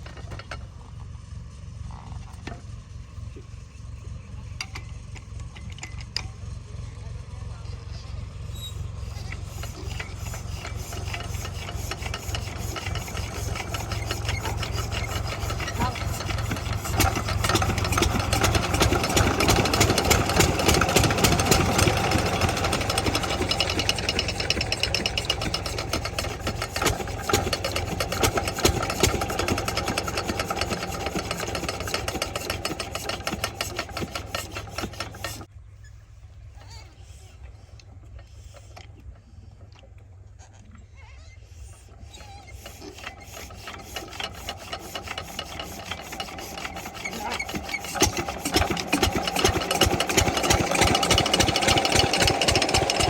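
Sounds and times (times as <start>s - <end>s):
water pump diesel engine knocking: 9.2s - 35.5s, 42.5s - 53.0s.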